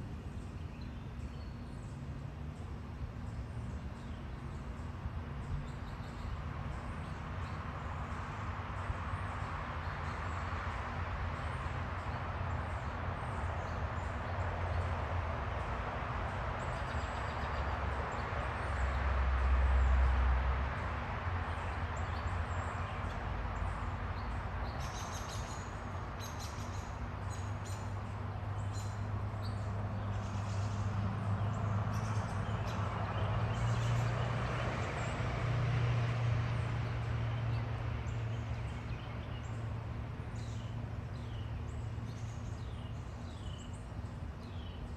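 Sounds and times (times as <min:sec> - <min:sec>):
small birds chirping: 0:21.4 - 0:35.3, 0:36.6 - 0:44.9.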